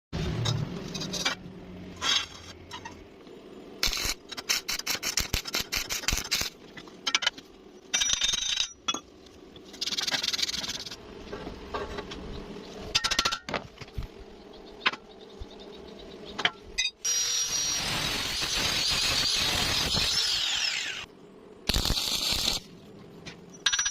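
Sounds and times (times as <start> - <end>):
metal tools clinking and scraping: 23.5 - 23.9.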